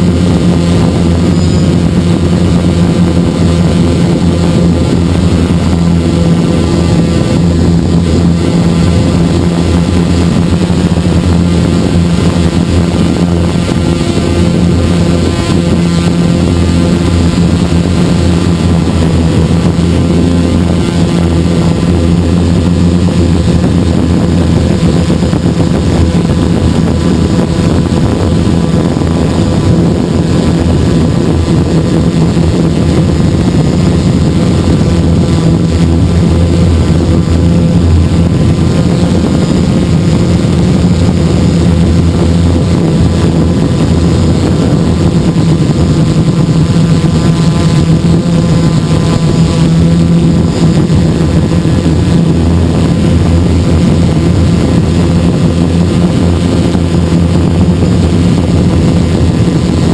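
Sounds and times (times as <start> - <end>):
drone propellers buzzing: 0.0 - 59.9.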